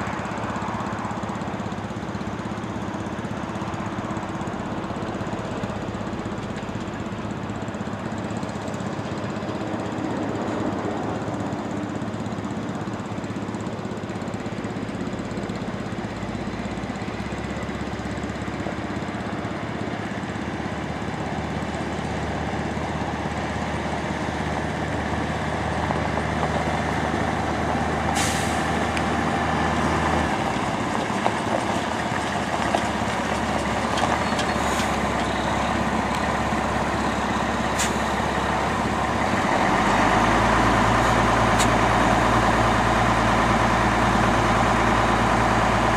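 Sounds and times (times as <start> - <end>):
truck engine running: 0.0 - 45.9
air brake hiss: 28.1 - 28.8, 37.5 - 38.4.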